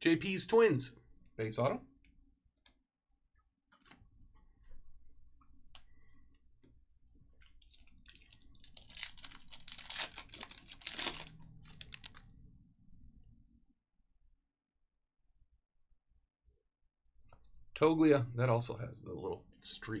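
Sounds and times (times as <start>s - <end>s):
wrapper crinkling and tearing: 7.7s - 12.3s.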